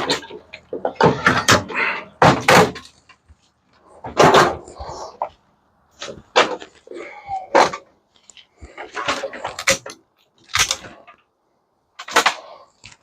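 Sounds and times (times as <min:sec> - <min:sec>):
sheet metal banging and clanking: 0:00.0 - 0:02.9.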